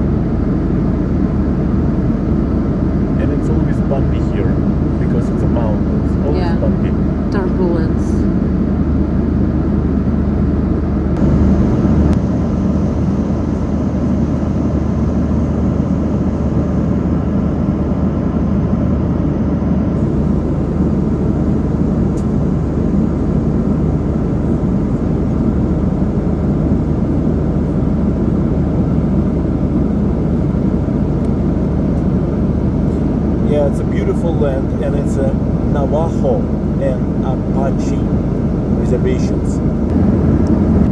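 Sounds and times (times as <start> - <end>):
vehicle cabin drone and rumble: 0.0 - 13.6, 18.0 - 40.9.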